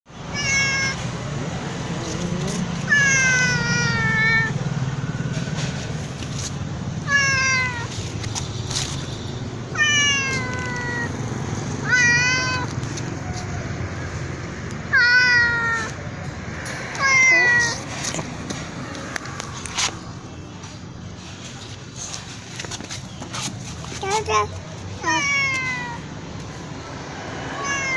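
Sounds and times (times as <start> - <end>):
cat meowing loudly: 0.3 - 1.0, 2.9 - 4.6, 9.7 - 11.2, 11.8 - 13.6, 14.9 - 16.0, 17.0 - 17.8, 25.0 - 26.1, 27.4 - 27.9.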